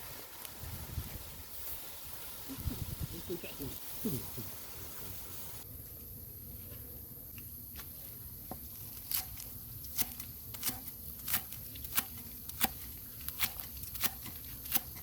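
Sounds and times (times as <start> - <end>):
steady high hiss: 0.0 - 8.8.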